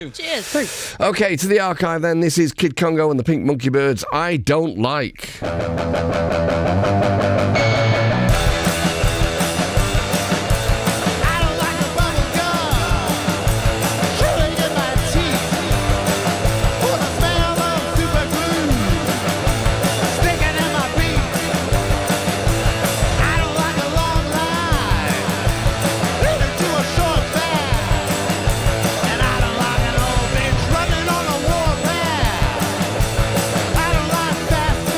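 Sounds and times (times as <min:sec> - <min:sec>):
rock band playing live: 0:05.4 - 0:34.9
electric guitar sliding lines: 0:18.4 - 0:23.6.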